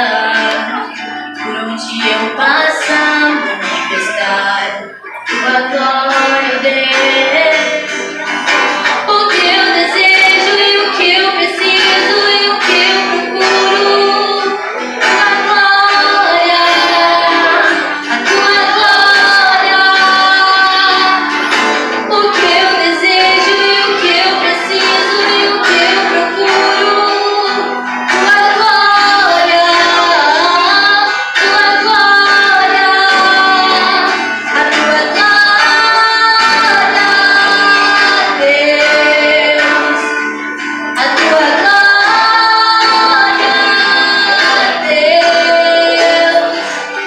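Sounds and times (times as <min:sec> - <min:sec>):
instrumental backing: 0:00.0 - 0:47.0
woman singing with vibrato: 0:00.0 - 0:47.0.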